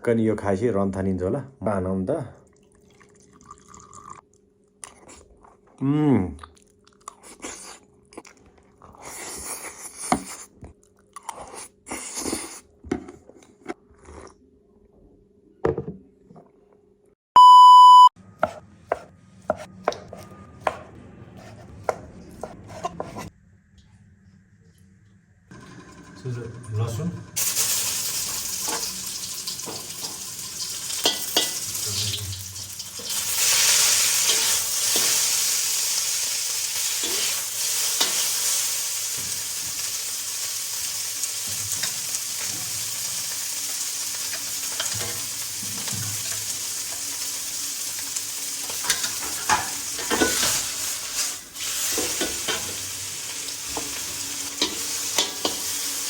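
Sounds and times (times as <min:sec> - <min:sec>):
food sizzling in hot oil: 0:27.4 - 0:56.0
utensil clicking and scraping pan: 0:54.6 - 0:55.8.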